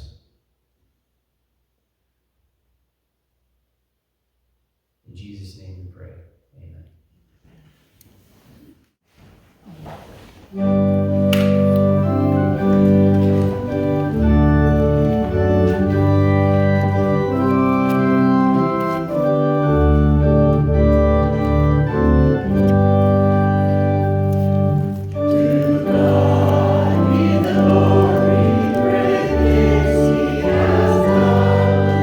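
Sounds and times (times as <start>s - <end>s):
organ playing chords: 10.5s - 32.0s
choir singing: 25.1s - 32.0s.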